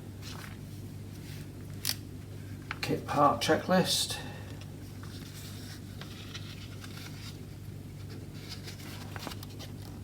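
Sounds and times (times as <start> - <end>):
low electrical hum: 0.0 - 10.0
paper booklet rustling: 0.2 - 1.5, 4.9 - 10.0.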